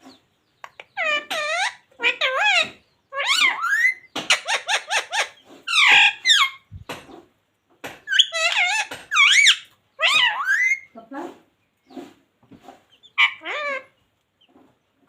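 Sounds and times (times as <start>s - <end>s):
parakeet calling and squawking: 0.1s - 7.3s, 8.0s - 11.0s, 12.9s - 14.5s.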